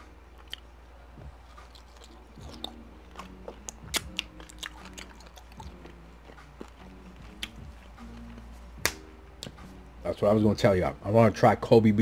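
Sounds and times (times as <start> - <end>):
close chewing with mouth clicks: 0.4 - 8.6.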